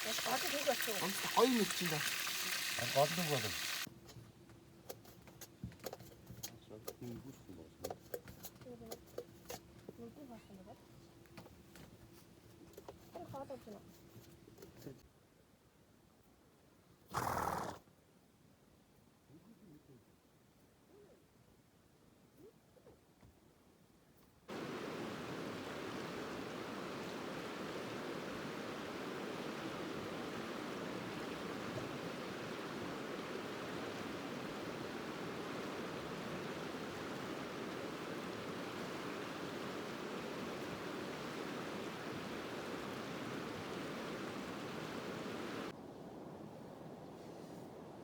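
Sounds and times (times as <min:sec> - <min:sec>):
river flowing: 0:00.0 - 0:03.9, 0:24.5 - 0:45.7.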